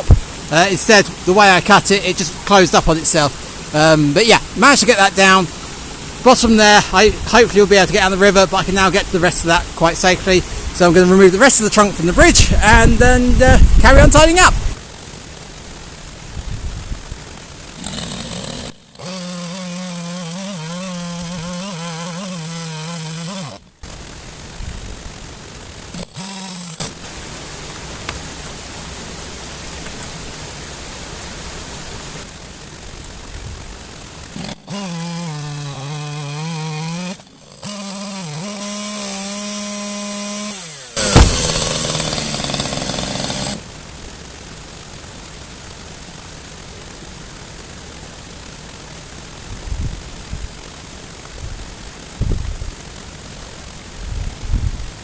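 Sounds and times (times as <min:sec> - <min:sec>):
chainsaw revving and idling: 0:00.0 - 0:16.4, 0:17.1 - 0:28.9, 0:33.6 - 0:54.0
loud crash: 0:41.0 - 0:42.8.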